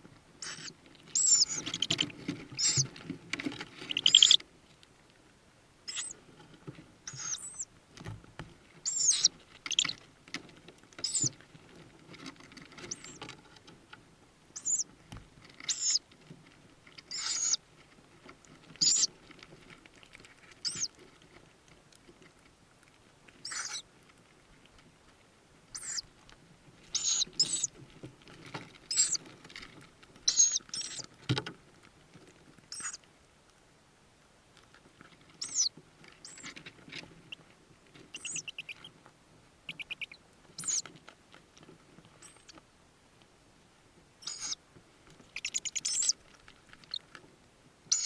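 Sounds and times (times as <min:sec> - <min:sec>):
faint rustling: 0:00.0 - 0:47.9
owl chicks hissing calls: 0:00.4 - 0:02.9, 0:03.9 - 0:04.4, 0:05.9 - 0:06.2, 0:07.1 - 0:07.7, 0:08.8 - 0:10.0, 0:11.0 - 0:11.3, 0:12.9 - 0:13.2, 0:14.6 - 0:14.9, 0:15.7 - 0:16.0, 0:17.1 - 0:17.6, 0:18.8 - 0:19.1, 0:20.6 - 0:20.9, 0:23.4 - 0:23.8, 0:25.7 - 0:26.0, 0:26.9 - 0:27.7, 0:28.9 - 0:29.2, 0:30.3 - 0:31.0, 0:32.7 - 0:33.0, 0:35.4 - 0:36.5, 0:38.1 - 0:38.9, 0:39.7 - 0:40.8, 0:44.2 - 0:44.6, 0:45.3 - 0:46.2.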